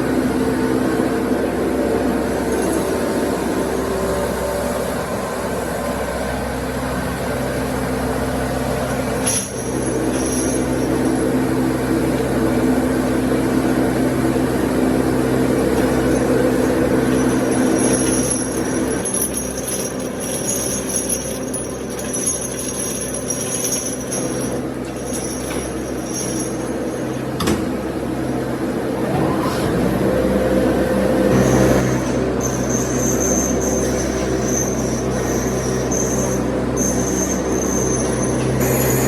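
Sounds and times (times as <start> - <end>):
high-pitched ringing tones: 16.1 - 27.3, 31.3 - 39.0.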